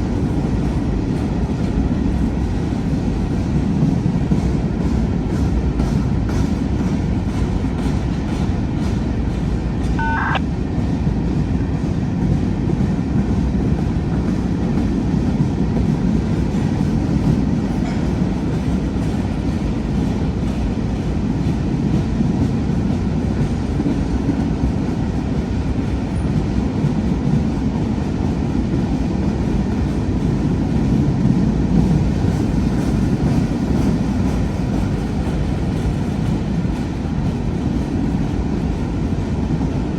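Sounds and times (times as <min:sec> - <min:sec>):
freight train rumbling past: 0:00.0 - 0:39.9
brief high chirp: 0:10.0 - 0:10.4.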